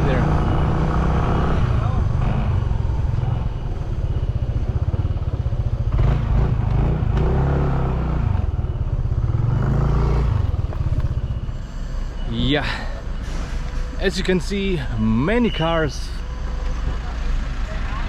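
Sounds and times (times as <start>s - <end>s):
motorcycle engine running: 8.4s - 11.6s.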